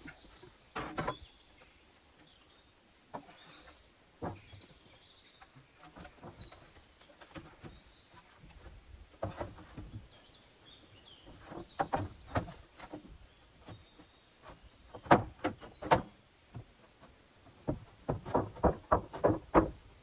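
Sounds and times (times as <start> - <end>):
knocks and thuds of hard material: 15.0 - 16.6, 17.6 - 20.0.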